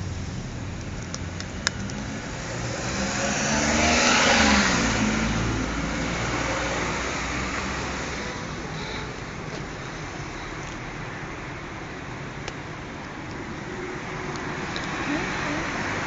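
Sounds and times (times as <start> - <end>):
car driving past: 0.0 - 9.2.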